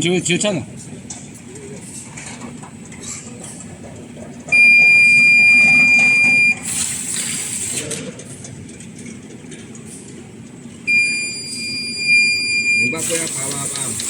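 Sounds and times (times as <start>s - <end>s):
burst of hiss: 6.6s - 7.8s, 13.0s - 14.0s
high-pitched electronic beep: 10.9s - 13.0s.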